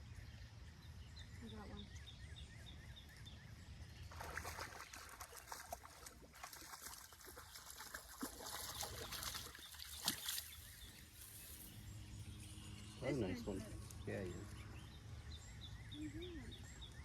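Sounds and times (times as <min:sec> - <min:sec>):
fish splashing in water: 0:04.1 - 0:11.2.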